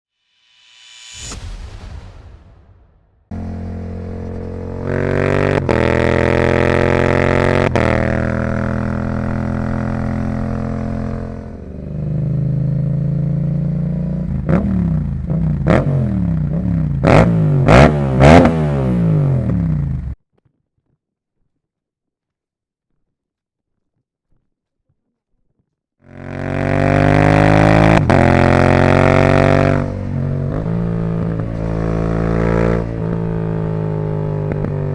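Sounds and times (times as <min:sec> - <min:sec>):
motorcycle engine throttle blips: 0:03.3 - 0:20.2, 0:26.1 - 0:34.9.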